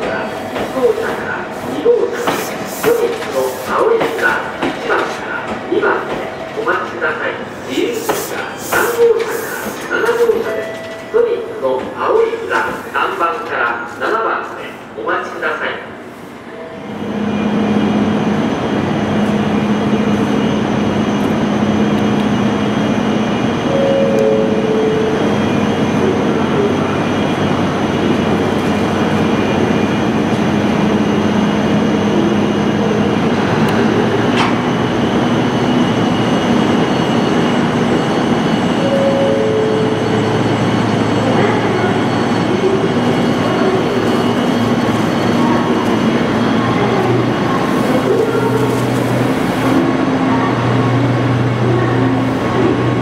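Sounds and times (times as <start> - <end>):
train rumbling past: 15.9 - 53.0.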